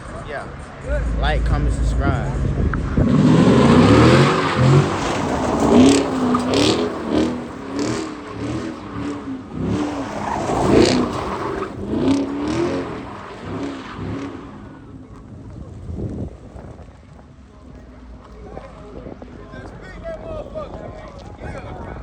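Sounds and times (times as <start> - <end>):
car engine revving: 0.5 - 16.7.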